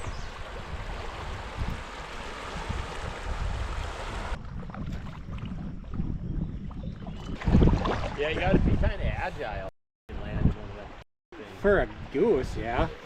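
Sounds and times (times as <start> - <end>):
river water rushing: 0.0 - 4.4
wind rumbling on microphone: 0.0 - 11.0.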